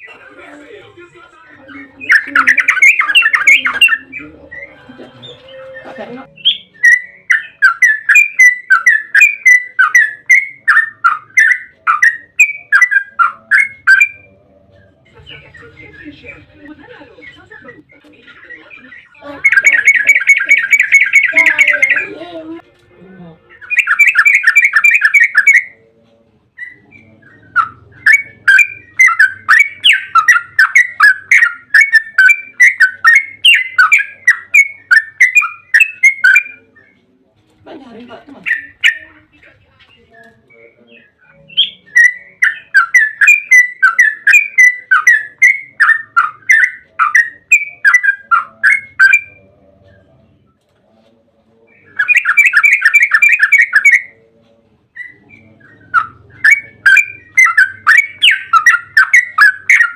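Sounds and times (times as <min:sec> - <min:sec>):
bird whistling repeated notes: 0:02.0 - 0:14.3, 0:19.0 - 0:22.1, 0:23.6 - 0:25.8, 0:26.6 - 0:37.0, 0:40.5 - 0:49.4, 0:51.7 - 0:54.2, 0:55.0 - 0:59.9.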